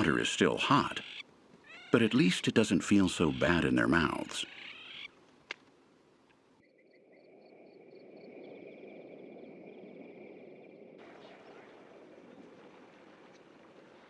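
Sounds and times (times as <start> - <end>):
soft low hiss: 0.0 - 6.6.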